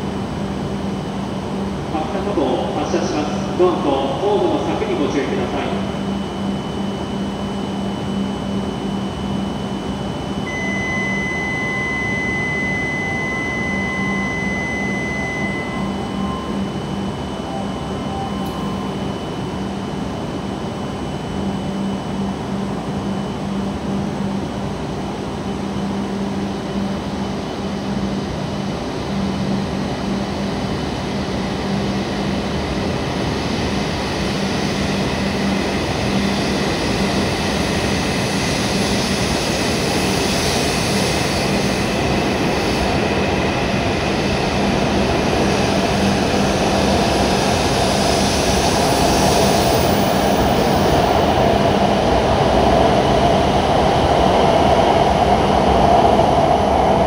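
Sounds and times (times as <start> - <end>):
low hum: 10.3 - 22.8
train accelerating: 11.6 - 20.1.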